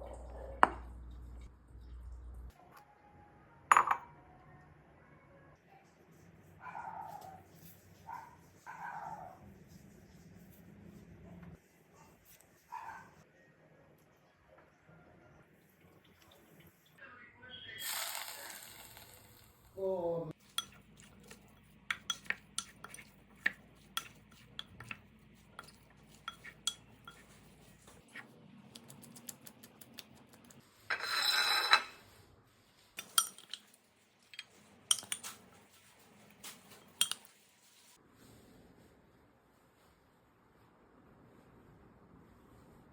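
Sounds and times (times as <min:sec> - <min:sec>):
cutlery clinking against a dish: 0:20.5 - 0:20.8, 0:21.9 - 0:25.0, 0:25.6 - 0:27.4, 0:33.0 - 0:35.4, 0:36.8 - 0:37.3.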